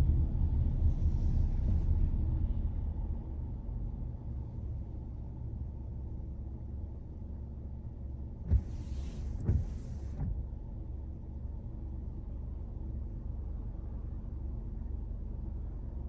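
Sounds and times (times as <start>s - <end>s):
car driving rumble: 0.0s - 7.4s, 8.0s - 16.0s
wiper thumps: 8.5s - 10.4s
windshield wipers sweeping: 8.5s - 10.5s.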